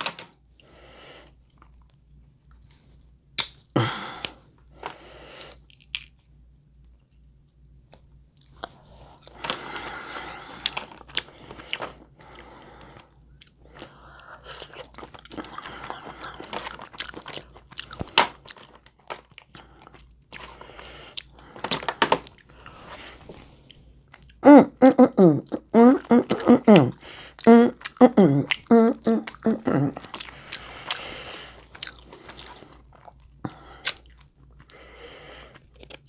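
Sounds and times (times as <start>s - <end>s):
chewing and biting food: 10.4s - 12.5s, 13.4s - 22.6s, 25.5s - 34.9s, 35.5s - 36.0s
sharp clicks and crunches: 14.6s - 22.6s.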